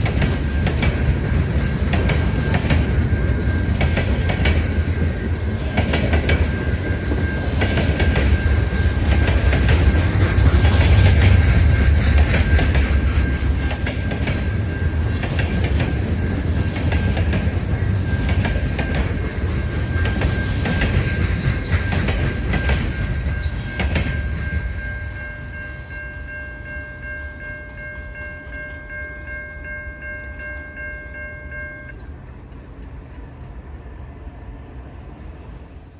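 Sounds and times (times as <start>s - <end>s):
wheels clicking over rail joints: 0.0s - 13.0s, 13.7s - 25.3s
train rumble: 0.0s - 35.9s
thin steady squeal: 12.1s - 14.7s.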